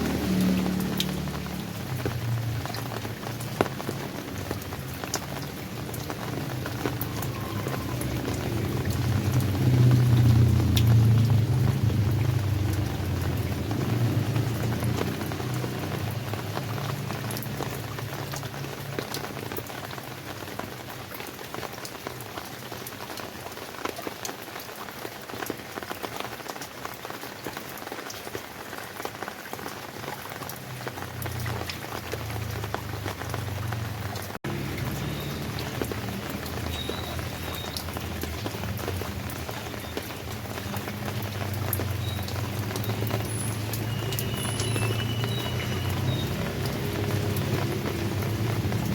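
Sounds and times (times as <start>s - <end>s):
rain falling: 0.0s - 48.9s.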